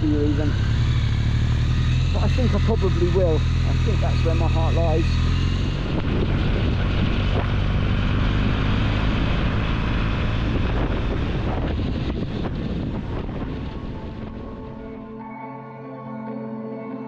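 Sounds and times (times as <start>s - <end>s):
motorcycle engine running: 0.0s - 15.1s
wind rushing over microphone: 4.8s - 15.1s.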